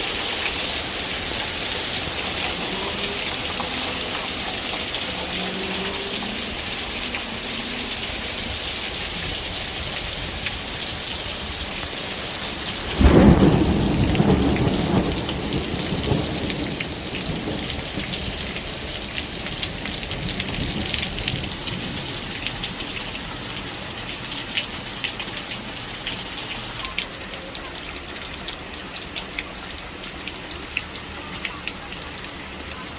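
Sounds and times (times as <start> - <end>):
heavy rain pouring: 0.0 - 32.9
loud thunderclap rumbling: 9.4 - 22.6
single raindrops pattering: 10.0 - 22.8.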